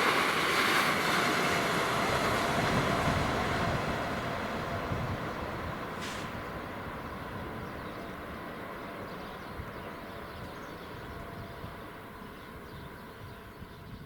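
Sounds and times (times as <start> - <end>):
train rumble: 0.0 - 14.0
short hiss: 6.0 - 6.4.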